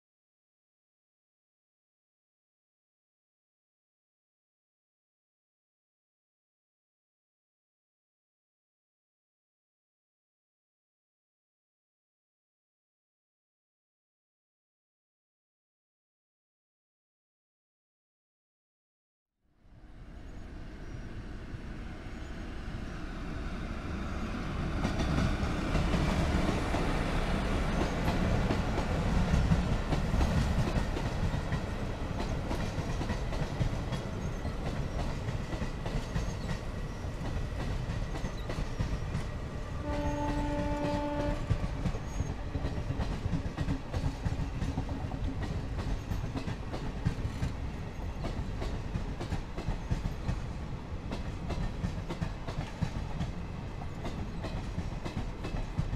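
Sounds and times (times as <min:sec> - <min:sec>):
rumble of train coaches: 0:19.6 - 0:55.9
locomotive horn: 0:39.8 - 0:41.6
wheels clacking over rail joints: 0:51.1 - 0:55.9.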